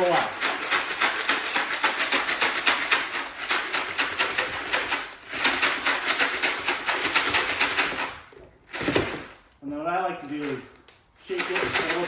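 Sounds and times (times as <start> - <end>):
litter pellets rattling in tray: 10.3 - 12.0.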